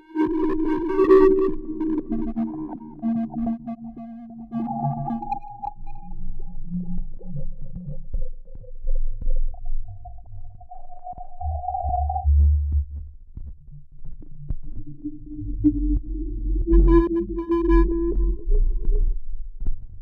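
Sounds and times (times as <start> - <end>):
distorted sub-bass rumble: 6.1 - 20.0.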